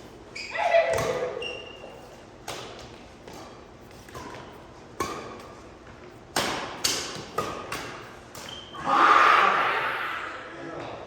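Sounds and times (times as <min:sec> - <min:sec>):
rackets hitting shuttlecock: 0:00.8 - 0:01.4, 0:02.4 - 0:08.6.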